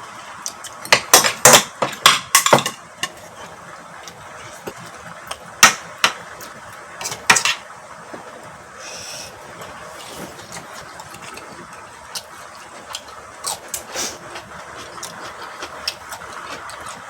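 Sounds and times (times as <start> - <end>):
utensils clinking on dishes: 0.9 - 3.6.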